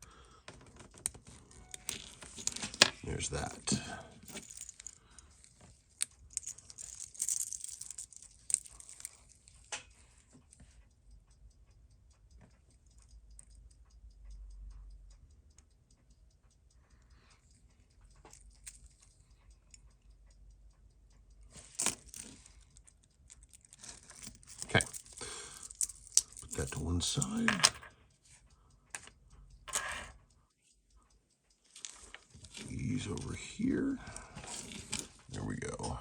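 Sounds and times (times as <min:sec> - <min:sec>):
watch bracelet clicking and rattling: 0:00.8 - 0:10.6, 0:17.6 - 0:20.4, 0:21.3 - 0:28.0, 0:31.0 - 0:35.8
fast watch ticking: 0:01.2 - 0:36.0.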